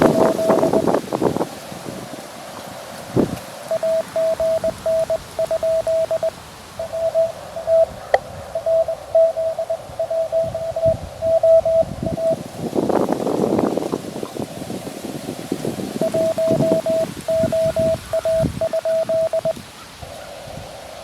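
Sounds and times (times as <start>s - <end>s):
morse code tone: 0.0s - 1.0s, 3.7s - 12.4s, 16.0s - 19.6s.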